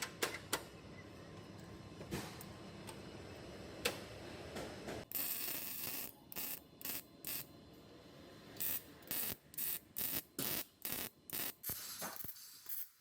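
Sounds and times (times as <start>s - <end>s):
compressed air hissing bursts: 11.6s - 12.6s.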